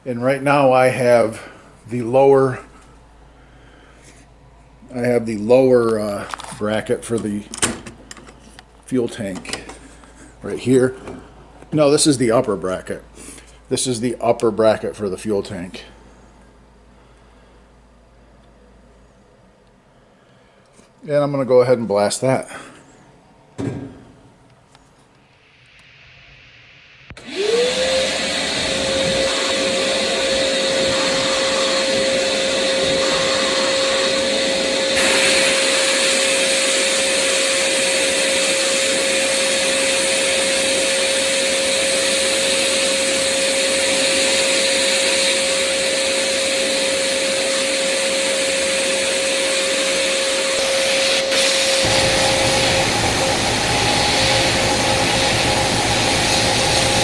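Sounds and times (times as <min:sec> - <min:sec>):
air blast gun hiss: 0:25.4 - 0:57.0
vacuum motor whine: 0:27.1 - 0:57.0
low compressor rumble: 0:51.8 - 0:57.0.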